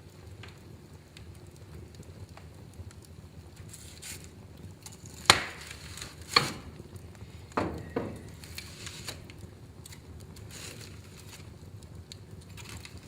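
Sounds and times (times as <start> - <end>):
low hiss: 0.0 - 12.6
wood fire crackling: 0.0 - 13.0
sharp fire pops: 0.1 - 13.0.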